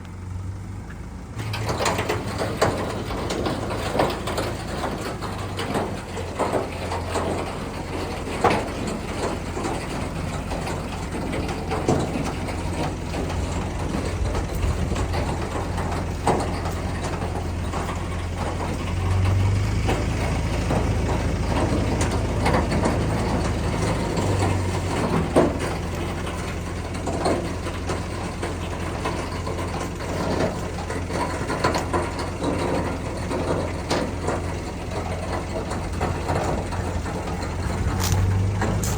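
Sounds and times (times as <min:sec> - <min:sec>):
truck engine idling: 0:00.0 - 0:38.9
metallic clicks and clanks: 0:01.4 - 0:38.9.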